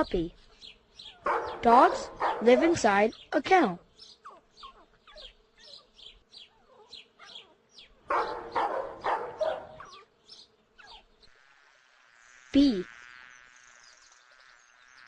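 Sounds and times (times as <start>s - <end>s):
dog yipping: 1.1s - 2.8s, 4.2s - 10.1s, 10.8s - 11.1s
dog barking: 1.2s - 2.9s, 6.8s - 10.1s.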